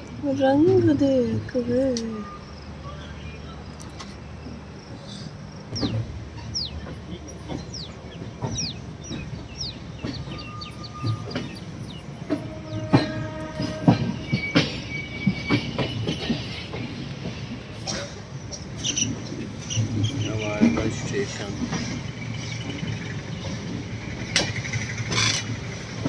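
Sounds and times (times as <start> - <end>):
train rumble: 0.0 - 26.0
wheels clattering over rail joints: 0.2 - 2.2, 3.8 - 26.0
high wheel squeals: 5.8 - 16.8.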